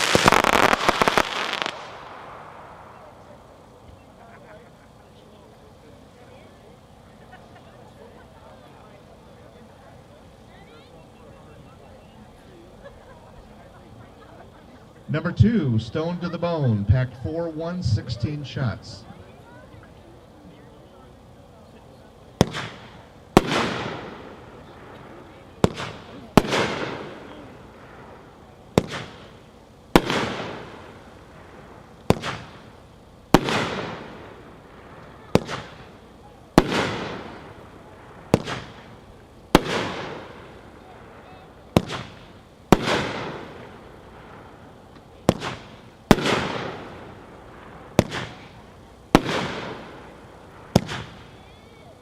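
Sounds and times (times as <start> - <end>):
fireworks bangs: 0.0 - 4.2, 22.3 - 52.0.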